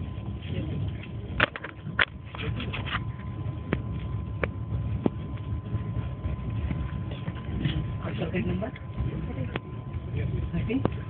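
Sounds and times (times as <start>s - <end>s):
faint whine: 0.0s - 11.0s
train rumble inside coach: 0.0s - 11.0s.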